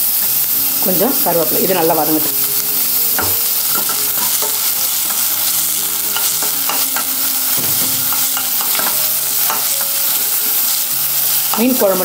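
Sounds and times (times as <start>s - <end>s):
onions sizzling in hot oil: 0.0s - 12.0s
spatula scraping and tapping pan: 3.2s - 5.4s, 6.1s - 10.0s.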